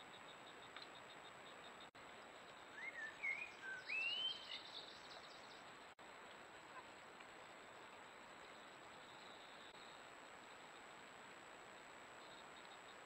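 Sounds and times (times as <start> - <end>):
faint steady hiss: 0.0 - 13.0
high bird chirps: 2.8 - 5.4.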